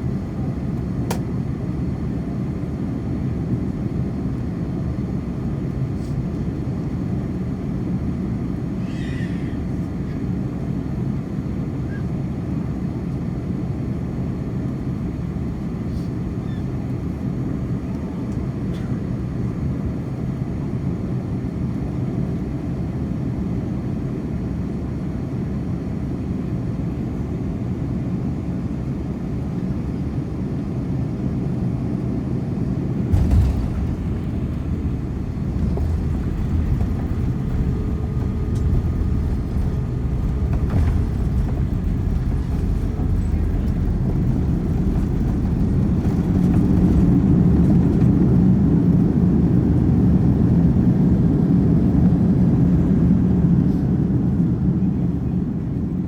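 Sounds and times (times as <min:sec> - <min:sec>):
airliner cabin rumble: 0:00.0 - 0:13.0, 0:26.1 - 0:56.0
sudden thump: 0:33.1 - 0:47.1.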